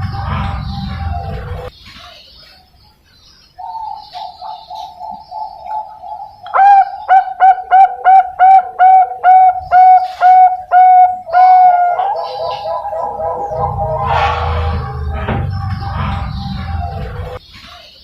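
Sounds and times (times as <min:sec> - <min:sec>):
dove cooing: 0:03.6 - 0:17.4
dove rolling trill: 0:03.7 - 0:17.4.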